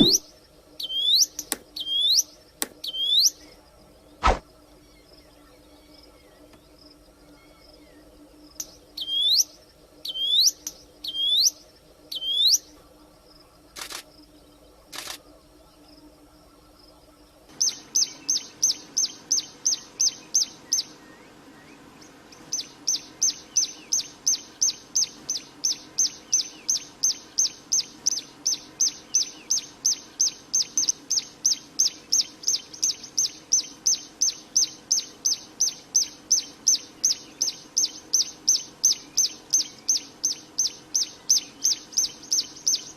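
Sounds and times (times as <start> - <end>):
bird call notes: 0.0 - 3.4
rapid high bird chirps: 0.0 - 3.5, 8.6 - 12.7, 17.5 - 42.9
sharp clicks: 13.8 - 14.1, 14.9 - 15.2.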